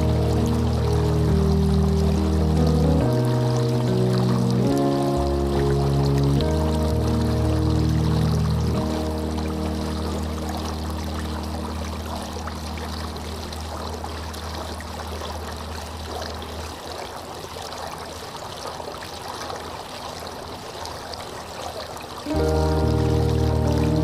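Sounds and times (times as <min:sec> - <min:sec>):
low held music tone: 0:00.0 - 0:16.9, 0:22.3 - 0:24.0
running water trickling: 0:00.0 - 0:24.0.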